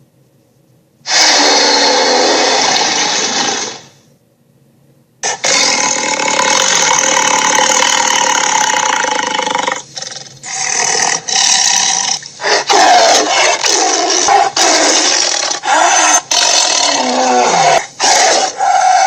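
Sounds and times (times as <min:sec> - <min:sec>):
cartoon monster roars and growls: 0:01.1 - 0:03.9, 0:12.4 - 0:19.0.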